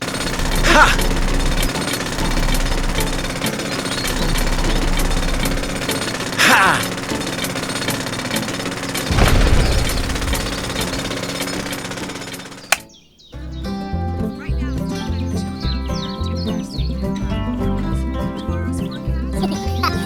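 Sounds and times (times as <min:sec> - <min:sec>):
rapid mechanical rattling: 0:00.0 - 0:13.0.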